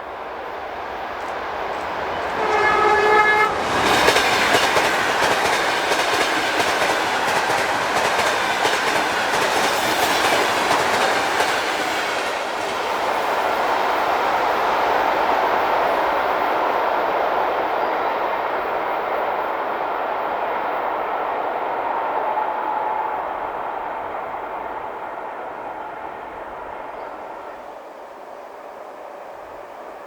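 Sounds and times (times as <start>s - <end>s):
train rushing past: 0.0s - 30.0s
train horn blast: 2.0s - 4.1s.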